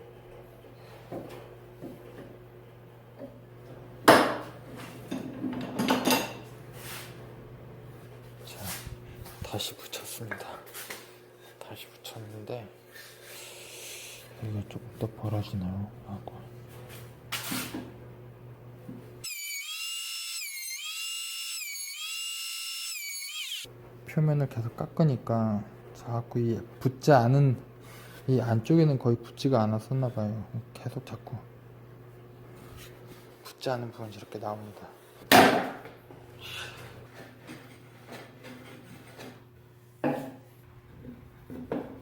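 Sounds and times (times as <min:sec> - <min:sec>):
power tool whining into wood: 0:19.2 - 0:23.7.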